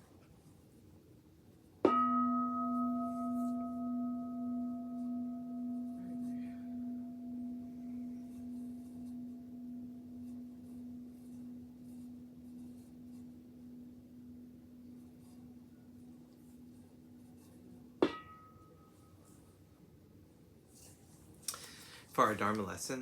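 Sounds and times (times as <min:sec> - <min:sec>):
bowl bell ringing: 0:01.9 - 0:16.1.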